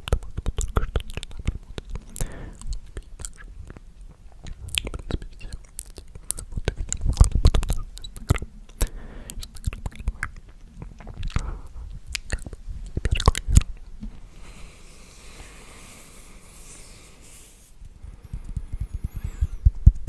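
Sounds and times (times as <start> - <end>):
wet mouth clicks and smacks: 0.0 - 13.9.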